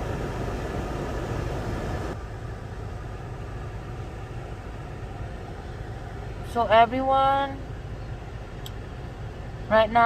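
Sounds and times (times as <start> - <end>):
car engine rumble inside cabin: 0.0 - 10.0.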